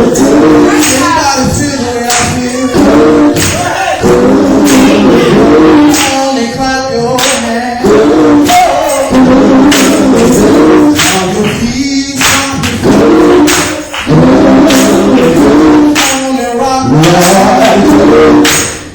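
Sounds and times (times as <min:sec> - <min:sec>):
gospel singing: 0:00.0 - 0:18.9
tambourine jingles: 0:08.4 - 0:16.7.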